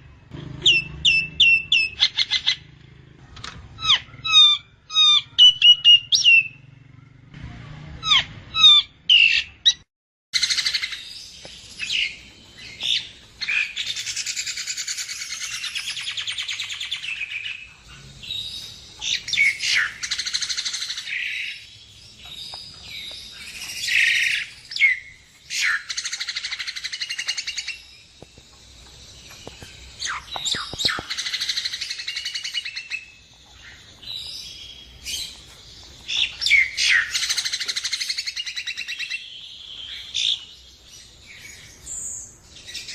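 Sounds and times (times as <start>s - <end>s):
bird whistled notes and clicks: 22.2s - 33.0s.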